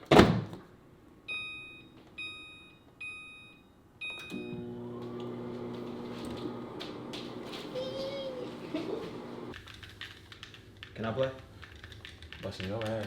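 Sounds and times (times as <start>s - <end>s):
microwave keypad beeping: 1.3s - 6.0s
microwave oven humming: 4.0s - 9.6s.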